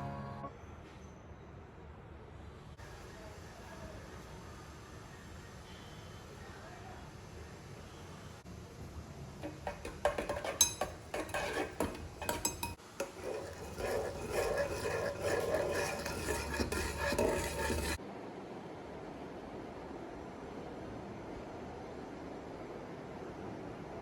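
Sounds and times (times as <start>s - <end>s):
cutlery clattering against dishes: 9.4s - 13.2s.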